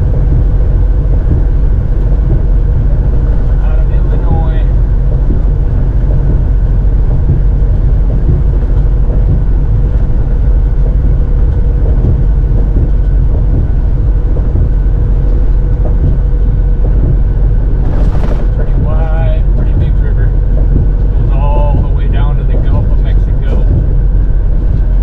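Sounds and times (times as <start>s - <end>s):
truck engine and road drone: 0.0s - 25.0s.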